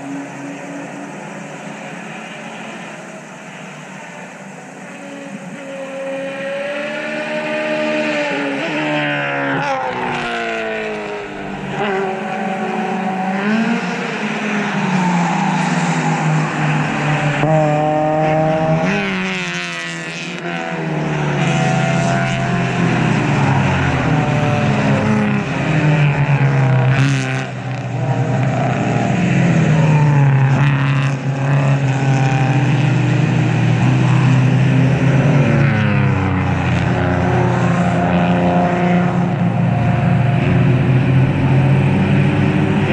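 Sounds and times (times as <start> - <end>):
race cars passing: 0.0 - 42.9.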